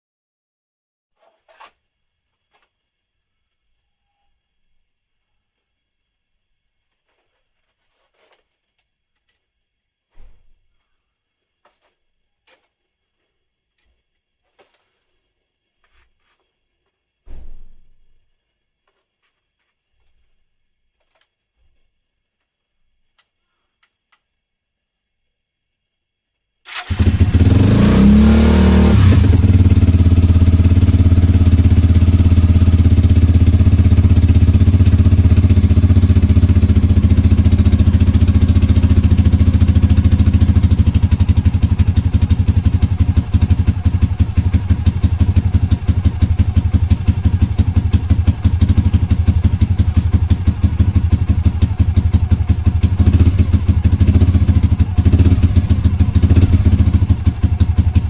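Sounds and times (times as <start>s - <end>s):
motorcycle engine starting and idling: 26.7s - 58.0s.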